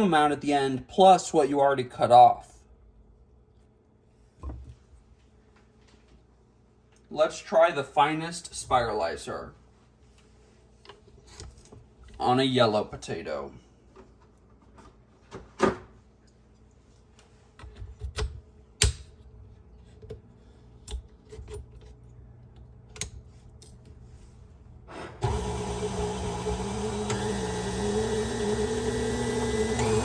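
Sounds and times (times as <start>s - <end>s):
stand mixer motor humming: 25.2s - 30.0s.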